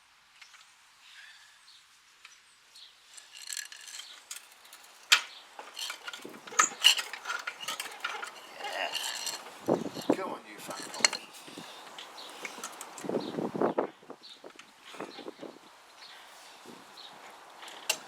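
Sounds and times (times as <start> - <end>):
metal clicking and rattling: 3.2 - 13.1.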